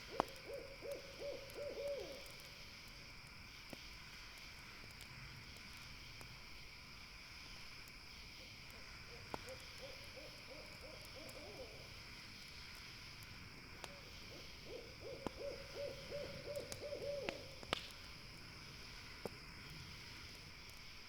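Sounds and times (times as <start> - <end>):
owl hooting: 0.0 - 2.3, 9.1 - 11.9, 14.3 - 17.6
campfire crackling: 0.0 - 21.0.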